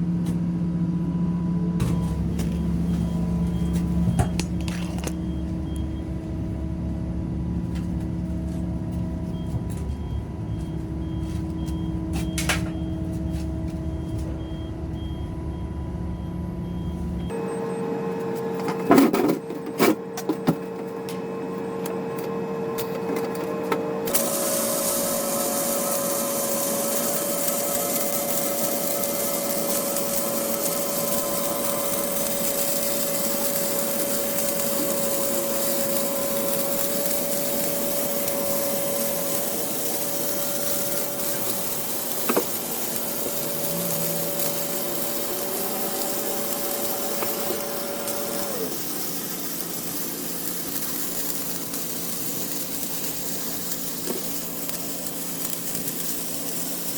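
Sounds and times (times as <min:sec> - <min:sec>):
wire feed whine: 0:00.0 - 0:56.9
welding arc hiss and crackle: 0:24.0 - 0:56.9.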